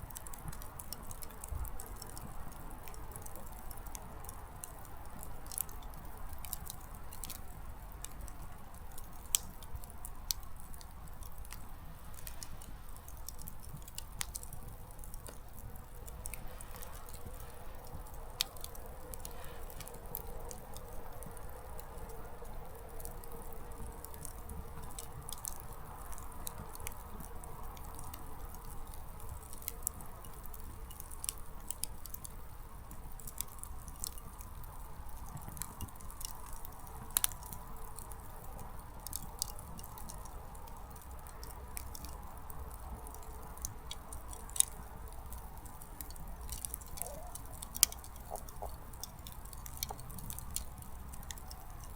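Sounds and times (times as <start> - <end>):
campfire crackling: 0.0 - 51.9
firewood pops: 46.0 - 51.5.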